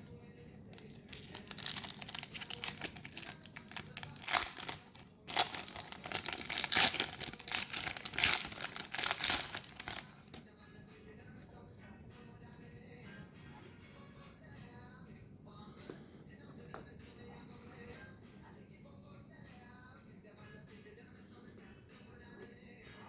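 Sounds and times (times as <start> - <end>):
foil wrapper crinkling: 0.7 - 10.4.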